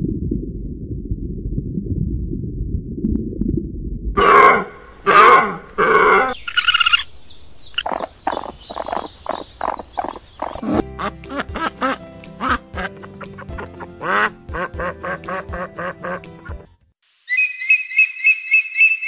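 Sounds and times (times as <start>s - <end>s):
animal grunting rumble: 4.2s - 6.4s, 9.6s - 10.9s
loud harsh animal calls: 4.2s - 7.1s
high whistled call: 17.3s - 19.0s.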